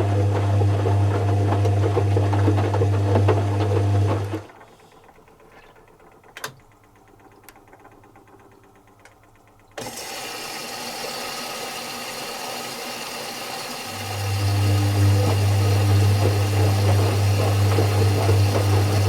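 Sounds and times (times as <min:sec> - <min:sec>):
washing machine clicks: 0:05.4 - 0:09.8.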